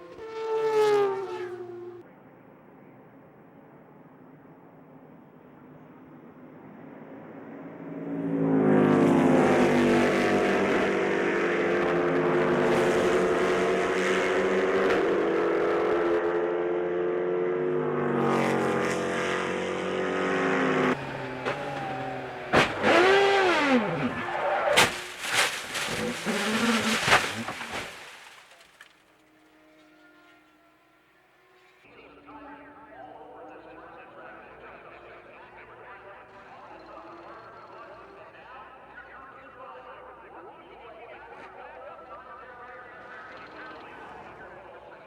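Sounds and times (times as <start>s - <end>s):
racing car engines passing: 0.0s - 2.1s, 6.2s - 28.7s, 30.1s - 45.0s
sharp cracks: 21.0s - 29.0s.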